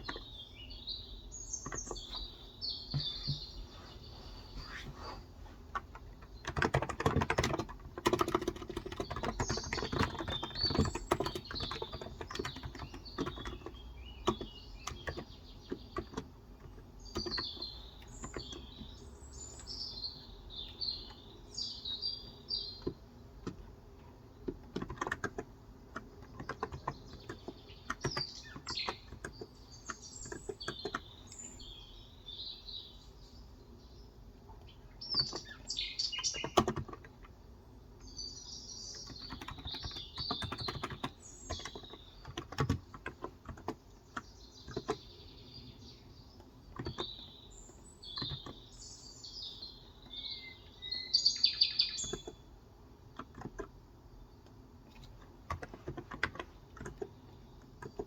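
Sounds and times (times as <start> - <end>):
small birds chirping: 0.0 - 58.0
keyboard typing: 1.6 - 2.3, 5.7 - 19.0, 24.4 - 31.4, 35.1 - 37.3, 38.9 - 45.0, 46.6 - 47.2, 48.1 - 48.7, 53.2 - 53.7, 54.9 - 58.0.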